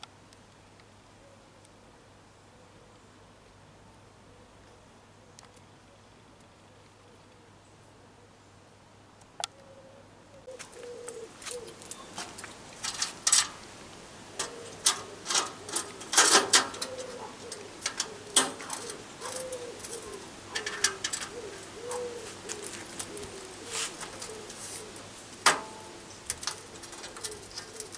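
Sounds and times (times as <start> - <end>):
pigeon cooing: 10.4 - 27.9
sharp clicks and knocks: 11.4 - 23.3, 25.4 - 27.9.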